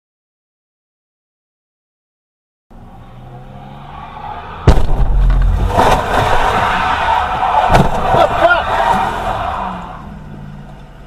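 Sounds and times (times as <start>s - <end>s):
car engine and road noise: 2.7s - 11.0s
vehicle collision bang: 4.5s - 9.7s.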